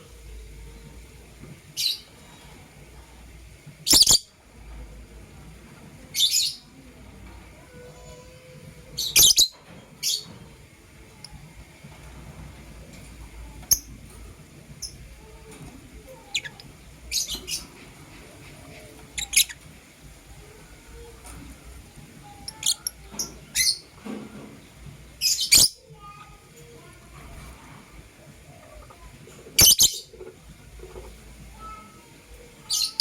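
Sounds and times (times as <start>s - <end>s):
lovebirds chirping: 18.9s - 19.6s, 29.6s - 30.2s, 32.6s - 33.0s.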